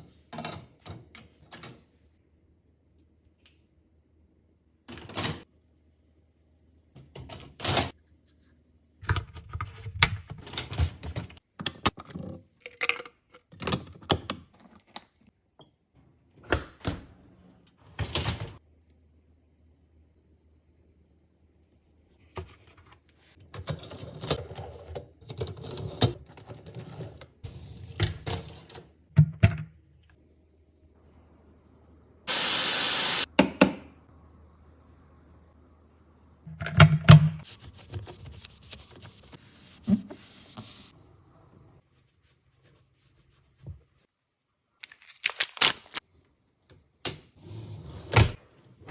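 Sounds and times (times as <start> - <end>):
loud hiss: 32.3 - 33.3.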